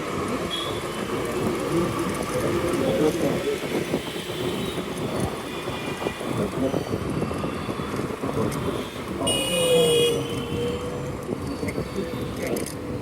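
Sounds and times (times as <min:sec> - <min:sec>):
road traffic noise: 0:00.0 - 0:13.0
wind on microphone: 0:01.0 - 0:13.0
vehicle horn: 0:09.2 - 0:10.9.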